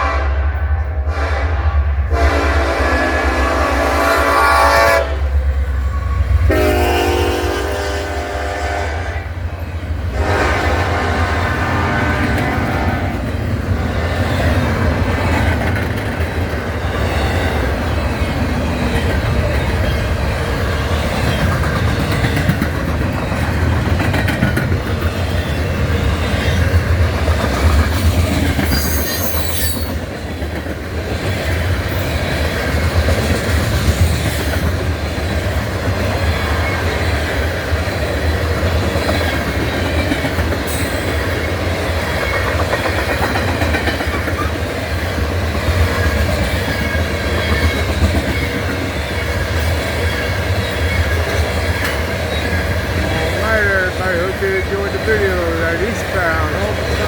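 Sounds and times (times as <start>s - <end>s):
freight train rumbling past: 0.0s - 57.0s
wheels clacking over rail joints: 12.0s - 57.0s
high-pitched wheel squeal: 28.7s - 30.0s.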